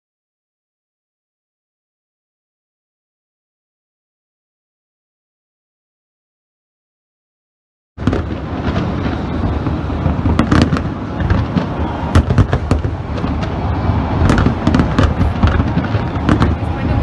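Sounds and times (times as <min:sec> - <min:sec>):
fireworks booms and crackles: 0:08.0 - 0:17.0.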